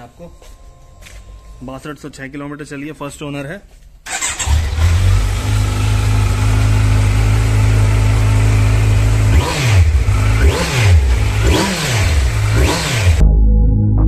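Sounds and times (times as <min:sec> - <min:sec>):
engine revving in throttle blips: 0:04.1 - 0:13.2
motorcycle engine idling: 0:05.0 - 0:12.6.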